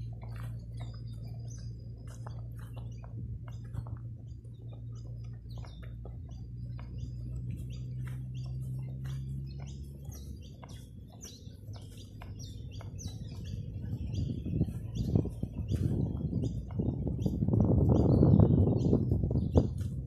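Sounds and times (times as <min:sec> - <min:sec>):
low rumble: 0:00.0 - 0:20.0
low steady hum: 0:00.0 - 0:20.0
small birds chirping: 0:00.0 - 0:20.0.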